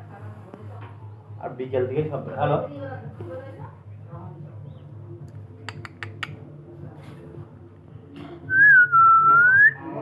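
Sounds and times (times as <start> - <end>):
sharp clicks: 5.3 - 6.4.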